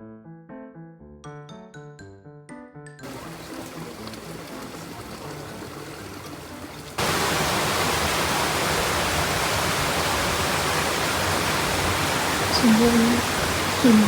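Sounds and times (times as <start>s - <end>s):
rushing river water: 3.0s - 14.0s.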